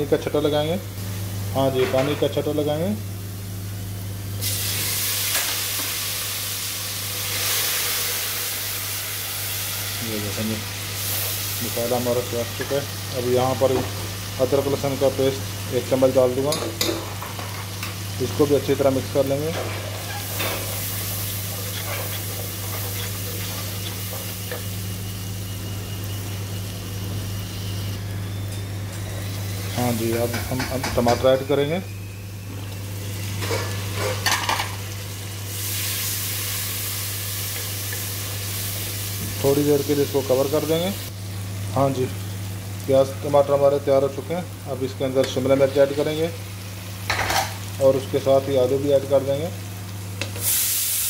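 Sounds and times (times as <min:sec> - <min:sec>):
sizzling in a pot: 0:02.8 - 0:51.0
wooden spatula scraping: 0:21.4 - 0:24.2.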